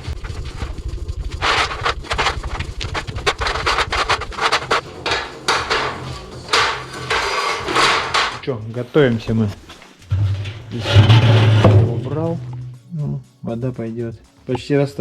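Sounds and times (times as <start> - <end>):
scraping noises: 1.3 - 12.8
sharp knocks: 3.3 - 8.4.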